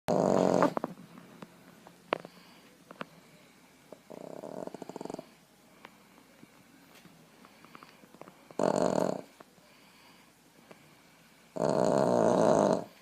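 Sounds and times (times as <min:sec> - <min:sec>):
dog snoring: 0:00.1 - 0:00.8, 0:04.0 - 0:05.4, 0:08.5 - 0:09.4, 0:11.5 - 0:13.0.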